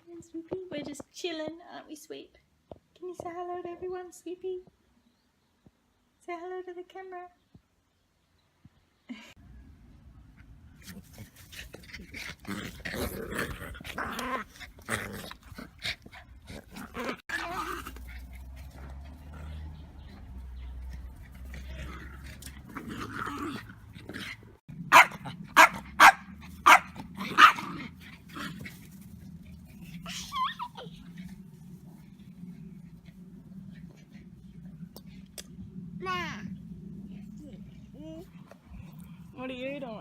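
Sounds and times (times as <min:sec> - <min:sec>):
soft scattered noises: 0:00.0 - 0:04.9
dog barking: 0:24.9 - 0:27.7.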